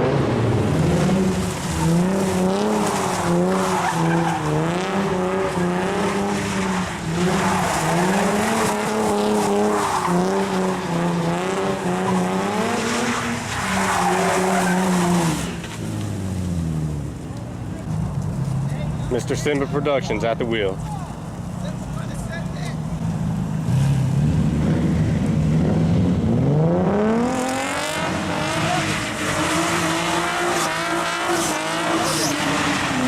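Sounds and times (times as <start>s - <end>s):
car engine revving high: 0.0s - 16.2s, 23.6s - 33.0s
tyres squealing: 2.7s - 4.8s.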